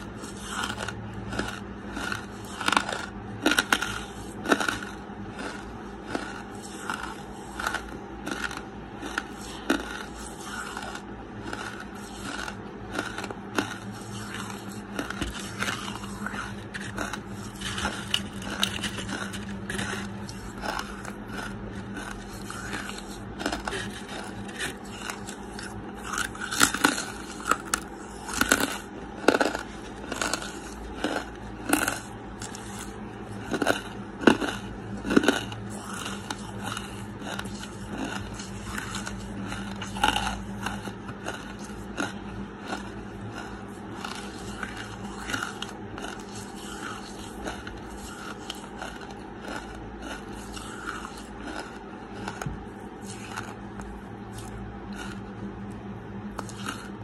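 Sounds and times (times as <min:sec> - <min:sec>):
crunchy chewing: 0:00.0 - 0:57.0
faint low hum: 0:00.0 - 0:57.0.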